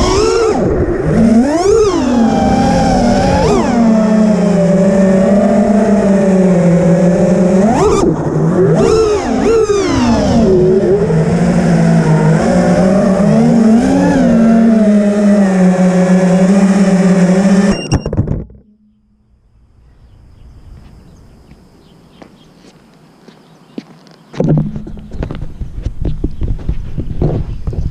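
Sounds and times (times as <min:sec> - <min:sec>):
drone motors whining: 0:00.0 - 0:21.5.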